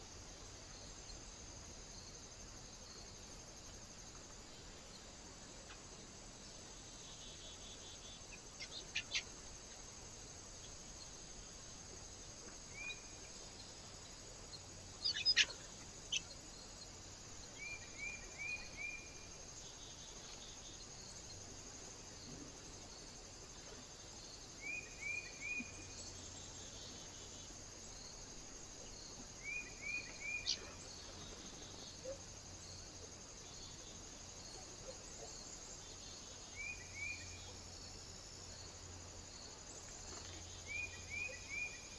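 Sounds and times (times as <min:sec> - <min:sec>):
steady high hiss: 0:00.0 - 0:41.9
small birds chirping: 0:07.0 - 0:09.4, 0:14.4 - 0:19.1, 0:29.4 - 0:32.2.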